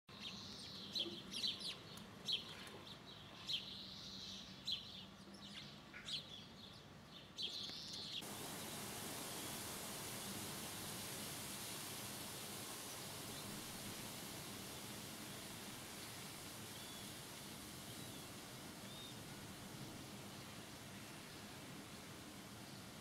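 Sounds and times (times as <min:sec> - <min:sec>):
small birds chirping: 0:00.1 - 0:23.0
steady hiss: 0:08.2 - 0:23.0.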